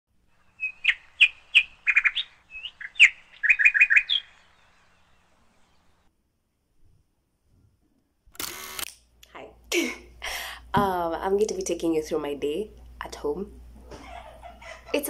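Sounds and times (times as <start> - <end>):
bird chirping: 0.3 - 6.1.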